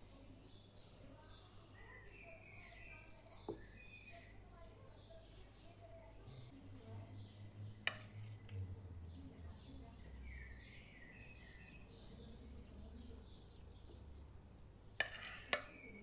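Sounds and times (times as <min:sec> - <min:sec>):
faint birds chirping: 0:00.0 - 0:16.0
low steady hum: 0:05.8 - 0:16.0.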